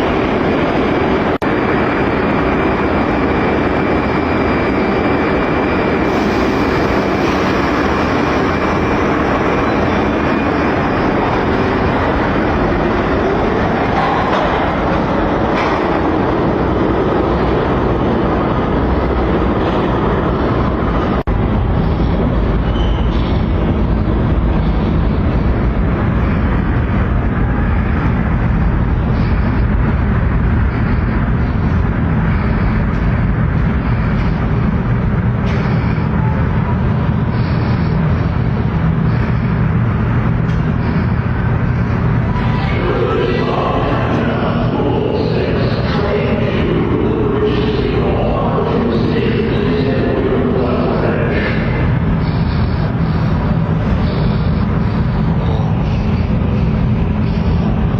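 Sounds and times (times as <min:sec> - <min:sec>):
subway train rumble: 0:00.0 - 0:57.9
train whine: 0:00.0 - 0:57.9.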